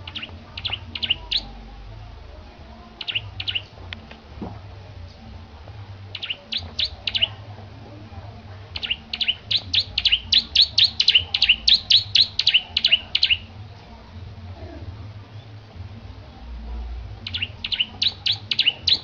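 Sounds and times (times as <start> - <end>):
bird sharp chirps: 0.0 - 1.5, 3.0 - 3.7, 6.1 - 7.4, 8.8 - 13.5, 17.2 - 19.0
steady low hum: 0.0 - 19.0.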